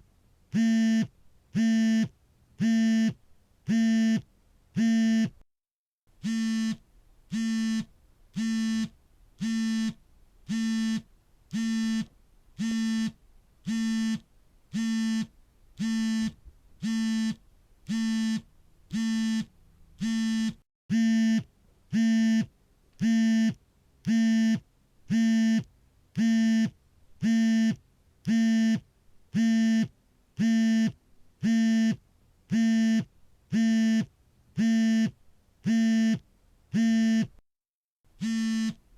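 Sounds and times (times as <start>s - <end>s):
phone vibration buzzing: 6.2s - 28.8s, 29.4s - 36.2s, 36.8s - 37.4s, 38.2s - 38.9s.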